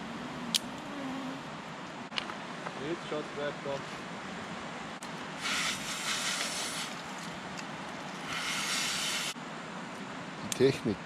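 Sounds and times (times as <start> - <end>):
person blowing on kindling: 5.4 - 7.0, 8.2 - 9.4.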